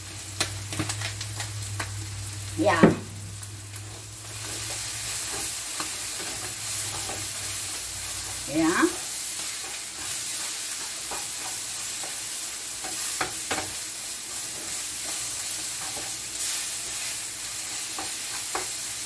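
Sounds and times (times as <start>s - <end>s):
fish sizzling in a frying pan: 0.0s - 19.0s
spatula knocking against pan: 12.8s - 13.7s.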